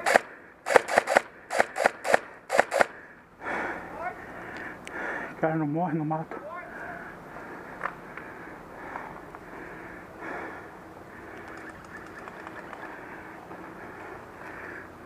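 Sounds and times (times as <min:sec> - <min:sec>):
birds calling: 0:06.4 - 0:15.0.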